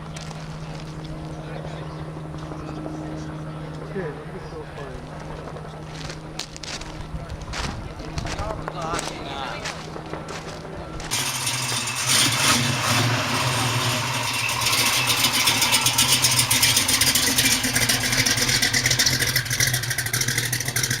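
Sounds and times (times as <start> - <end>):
truck engine clattering: 4.6 - 21.0.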